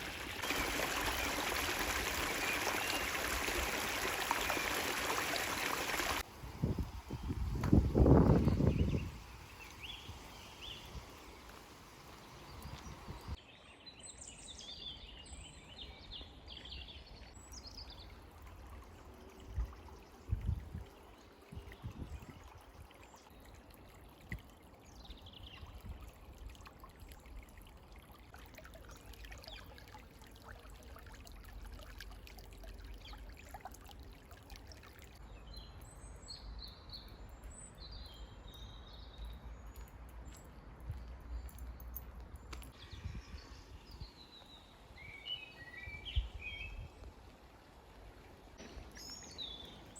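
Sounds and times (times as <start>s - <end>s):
birds chirping: 0.0s - 13.4s
stream trickling: 0.0s - 49.9s.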